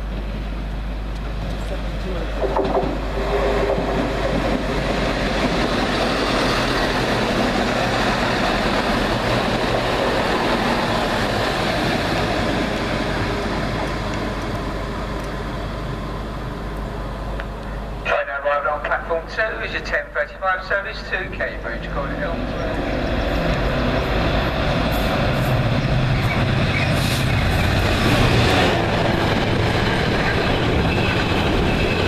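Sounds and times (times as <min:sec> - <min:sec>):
train wheels on rails: 0:00.0 - 0:17.8, 0:22.1 - 0:32.0
diesel train engines: 0:00.0 - 0:32.0.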